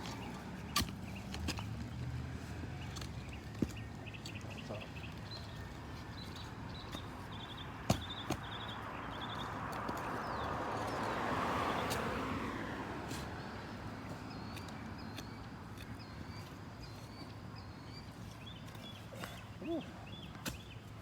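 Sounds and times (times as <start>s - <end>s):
bird chirping: 2.8s - 11.2s, 14.0s - 20.9s
car passing: 8.5s - 14.2s.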